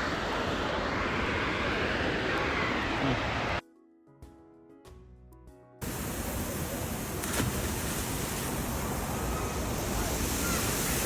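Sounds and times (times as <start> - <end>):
waterfall roaring: 5.8 - 11.0.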